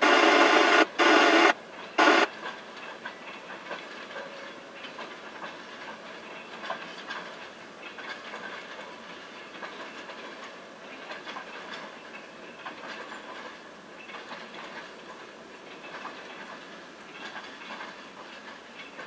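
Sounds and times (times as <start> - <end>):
steady train rolling noise: 0.0 - 19.0
wheels clacking over rail joints: 0.8 - 19.0.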